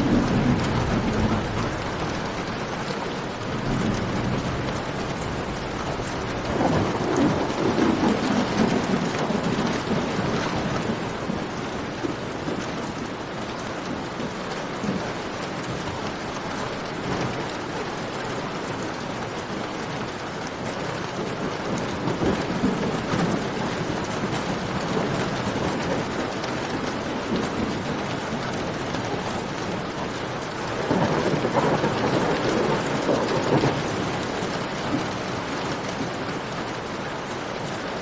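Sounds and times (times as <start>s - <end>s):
rain falling: 0.0s - 38.0s.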